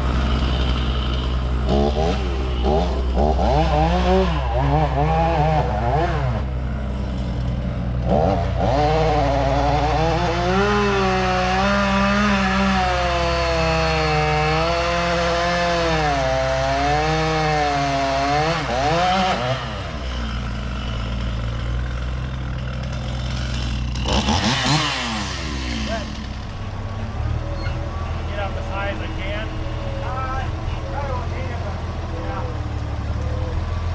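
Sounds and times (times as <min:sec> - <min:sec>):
chainsaw cutting wood: 0:00.0 - 0:26.7
low engine hum: 0:00.0 - 0:33.9.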